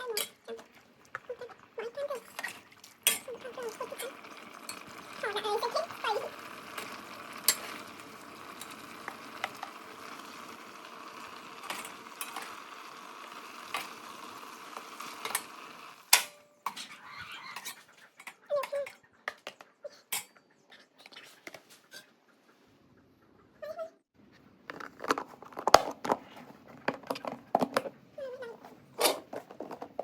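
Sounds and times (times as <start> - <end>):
metal utensils and dishes clinking: 0.0 - 0.7, 2.2 - 5.3.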